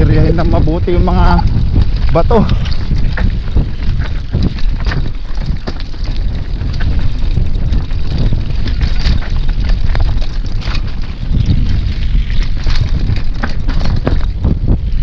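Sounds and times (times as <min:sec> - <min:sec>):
bike clattering over stones: 0:00.0 - 0:15.0
wind buffeting microphone: 0:00.0 - 0:15.0.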